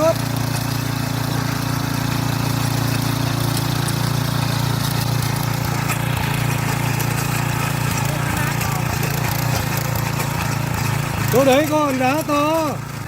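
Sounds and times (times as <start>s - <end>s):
tiller engine running: 0.0s - 13.0s.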